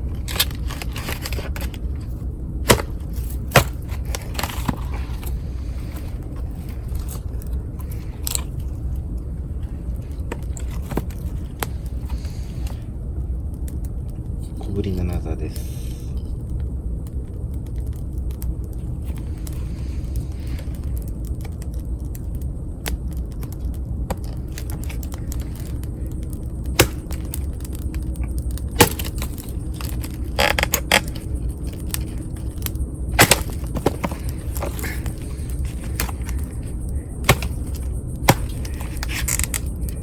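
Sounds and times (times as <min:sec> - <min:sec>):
campfire crackling and popping: 0:00.0 - 0:40.0
low fire rumble: 0:00.0 - 0:40.0.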